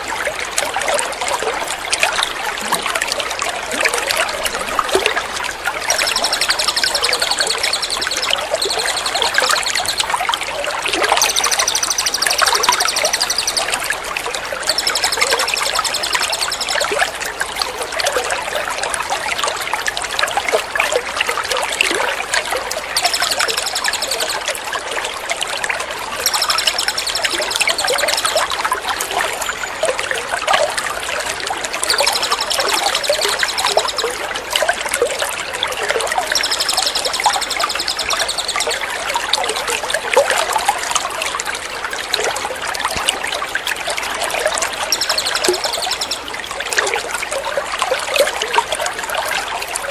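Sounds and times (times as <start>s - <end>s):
trickling water: 0.0s - 49.9s
songbird high call: 5.8s - 10.2s, 11.2s - 14.0s, 14.6s - 17.0s, 23.0s - 24.5s, 26.2s - 29.8s, 31.8s - 34.3s, 36.1s - 38.8s, 44.5s - 46.4s.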